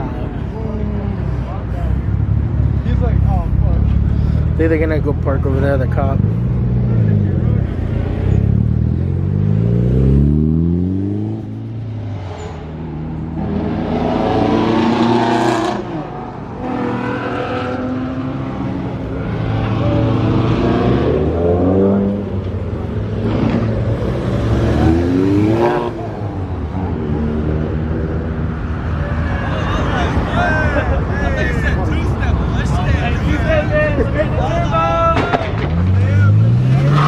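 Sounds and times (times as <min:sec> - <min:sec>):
car engines revving: 0:00.0 - 0:37.0.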